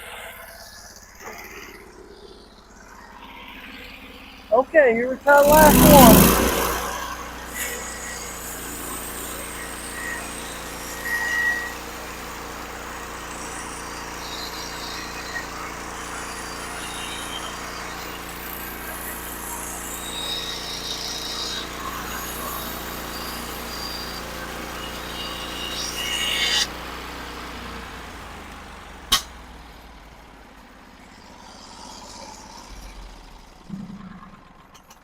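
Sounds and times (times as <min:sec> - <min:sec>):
sawmill engine running: 0:00.0 - 0:35.0
band blade sawing wood: 0:05.3 - 0:17.2, 0:19.5 - 0:26.7.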